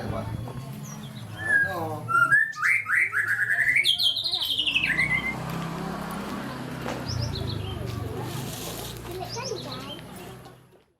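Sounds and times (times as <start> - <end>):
bird singing fast trill: 0.8 - 5.4.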